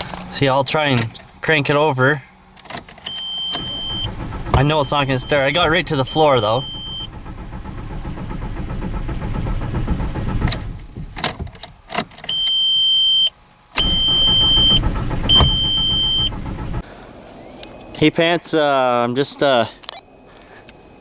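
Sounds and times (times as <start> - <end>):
starter motor cranking engine: 2.4 - 12.4, 13.8 - 16.8.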